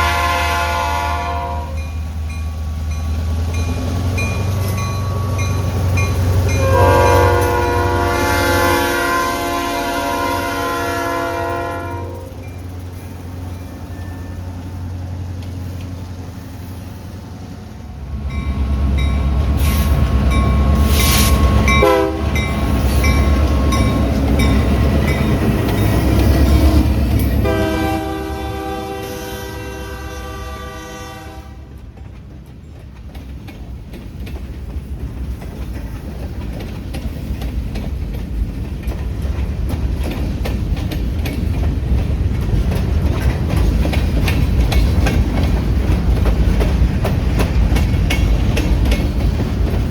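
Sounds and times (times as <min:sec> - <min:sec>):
train horn: 0:00.0 - 0:02.0, 0:06.5 - 0:12.4, 0:20.8 - 0:22.5, 0:26.5 - 0:31.8
locomotive engine rumbling: 0:00.0 - 0:49.9
train cars clickety-clack: 0:00.0 - 0:49.9.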